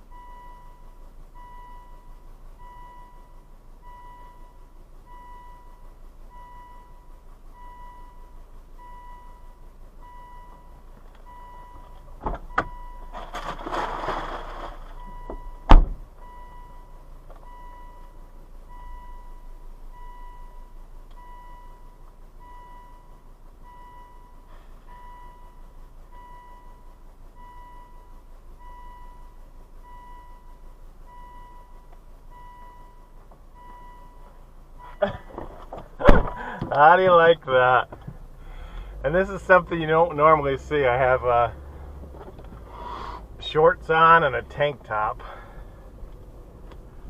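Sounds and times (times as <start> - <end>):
car warning chime beeping: 0.0 - 13.2, 14.9 - 47.0
rustle: 10.5 - 15.5
loud thump: 15.6 - 16.1, 35.3 - 36.8.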